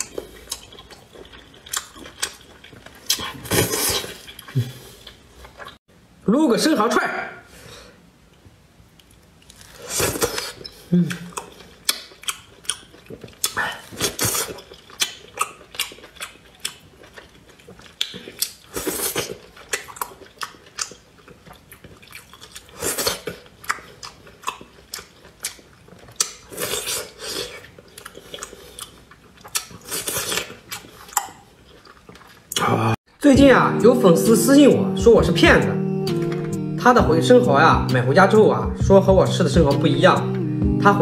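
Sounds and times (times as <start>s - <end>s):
person chewing with wet mouth sounds: 0.0s - 5.8s, 8.9s - 33.0s
slurping and smacking: 0.0s - 5.8s.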